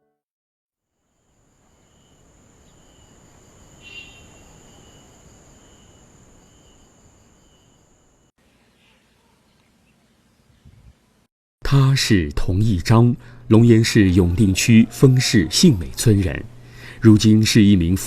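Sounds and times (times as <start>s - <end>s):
insects chirring: 1.0s - 8.3s.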